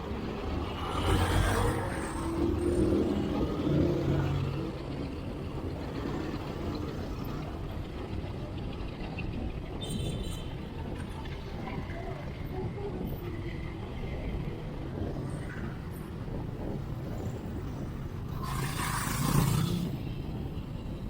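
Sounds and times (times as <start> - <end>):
vehicles passing close by: 0.0 - 8.5, 15.2 - 21.0
steady low traffic rumble: 0.0 - 21.0.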